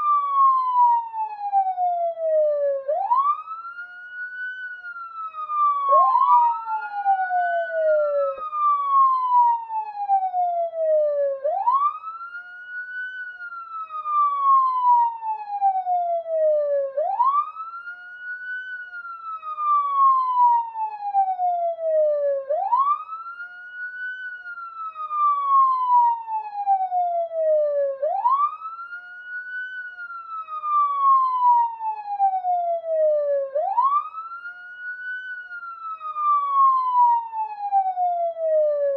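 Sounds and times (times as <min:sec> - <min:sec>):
police siren wailing: 0:00.0 - 0:38.9.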